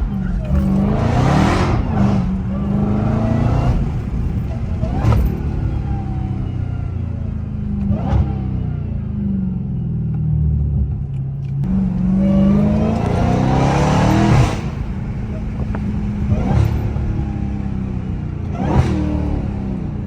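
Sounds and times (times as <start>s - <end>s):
car engine accelerating hard: 0.0s - 9.9s, 10.5s - 20.0s.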